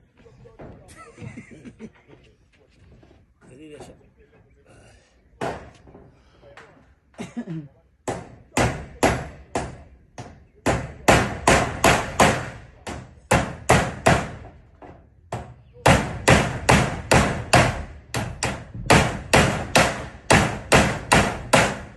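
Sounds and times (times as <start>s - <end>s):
hammer nailing into metal roofing: 8.0s - 21.9s.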